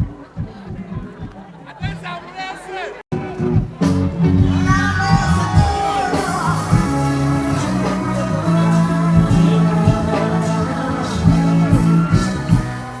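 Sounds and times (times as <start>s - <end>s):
live band music: 3.2s - 13.0s
person singing: 4.4s - 13.0s.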